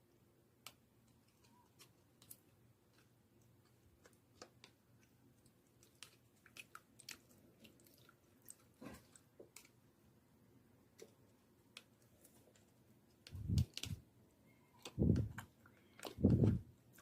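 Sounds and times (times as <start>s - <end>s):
slime squish: 0.6s - 9.8s.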